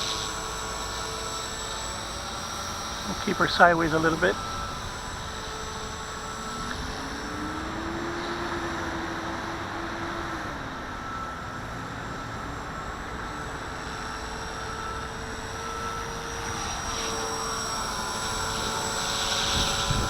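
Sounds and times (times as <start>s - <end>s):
rc helicopter whining: 0.0s - 20.0s
wind noise: 19.3s - 20.0s.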